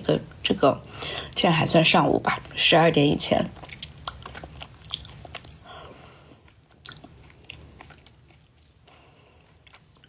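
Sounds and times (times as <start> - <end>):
person chewing food: 3.3 - 10.0.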